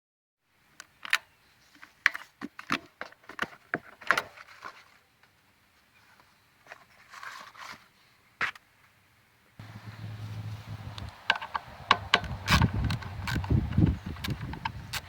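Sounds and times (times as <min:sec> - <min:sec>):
rustling: 0:01.6 - 0:08.6, 0:09.6 - 0:15.0
sharp clicks and knocks: 0:11.0 - 0:15.0.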